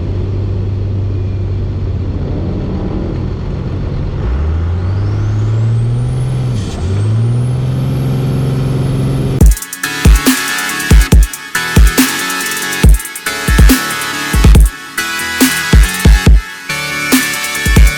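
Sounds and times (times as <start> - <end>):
diesel truck engine accelerating: 0.0 - 9.4.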